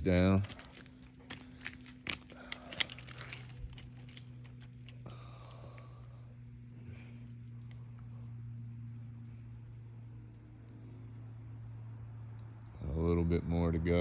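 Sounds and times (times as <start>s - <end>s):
twigs crunching underfoot: 0.0s - 5.6s
low steady hum: 0.0s - 14.0s.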